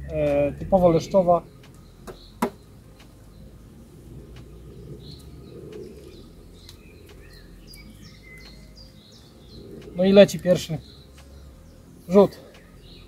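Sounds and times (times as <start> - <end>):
birds chirping: 0.0 - 13.0
low steady rumble: 0.0 - 13.0
faint clicks: 1.6 - 2.1, 2.9 - 8.8, 9.6 - 11.6.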